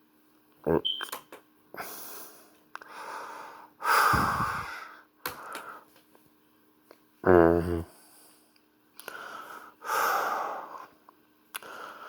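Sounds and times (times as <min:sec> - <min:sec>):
faint steady hum: 0:00.0 - 0:12.0
person breathing out noisily: 0:01.8 - 0:05.9.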